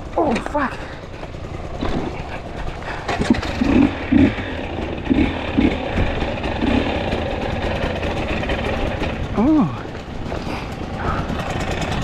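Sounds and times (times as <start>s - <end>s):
clatter: 0.0s - 12.0s
dirt bike engine revving: 1.6s - 12.0s.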